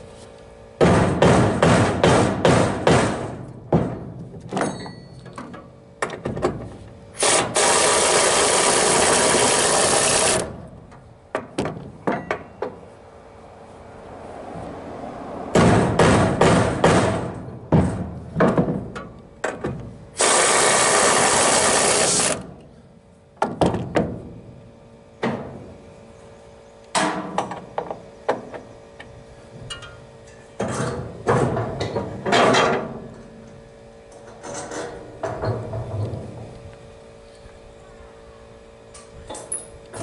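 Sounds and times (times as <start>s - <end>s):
tool knocks and clanks: 0.8s - 6.8s, 10.9s - 12.9s, 15.6s - 19.9s, 23.4s - 24.3s, 27.0s - 28.6s, 29.6s - 33.0s, 34.2s - 36.5s.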